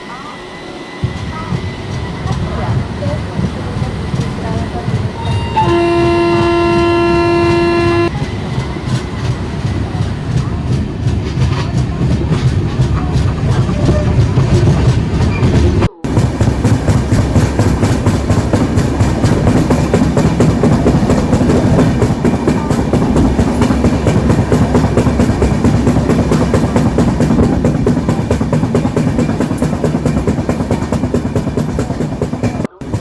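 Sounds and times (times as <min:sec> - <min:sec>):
heavy train rumble: 0:00.0 - 0:33.0
train wheels clattering over joints: 0:01.0 - 0:33.0
steady hum: 0:05.6 - 0:08.2.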